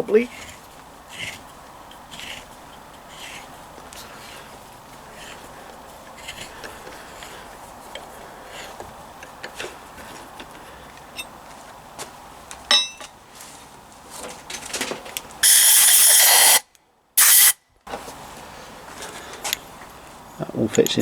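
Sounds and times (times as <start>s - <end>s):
hissing spray blasts: 15.4s - 17.6s.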